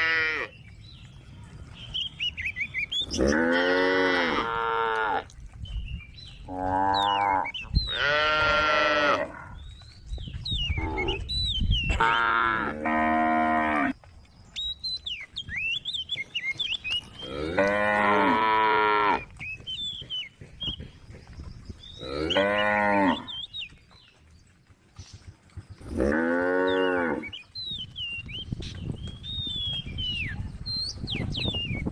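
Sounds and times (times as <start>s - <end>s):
small birds chirping: 0.2s - 31.9s
cow mooing: 3.1s - 5.3s, 6.5s - 9.5s, 17.2s - 19.3s, 22.0s - 23.3s, 25.9s - 27.3s.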